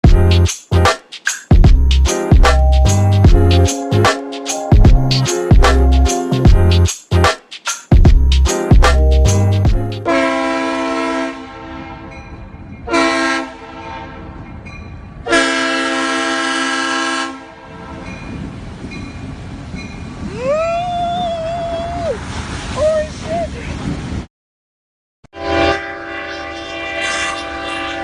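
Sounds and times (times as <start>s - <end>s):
train air horn blasts: 10.1s - 12.1s, 12.9s - 14.4s, 15.2s - 18.1s, 25.3s - 28.0s.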